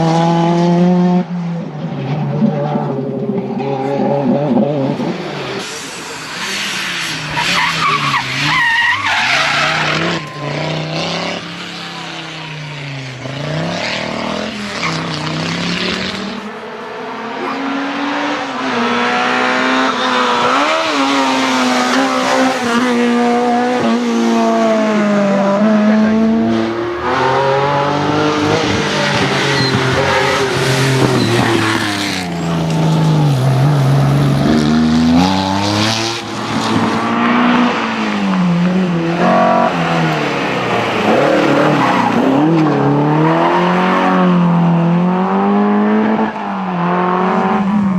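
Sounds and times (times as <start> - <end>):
rally car engines revving: 0.0 - 47.9
tyres squealing and skidding: 5.1 - 16.5, 26.6 - 44.2.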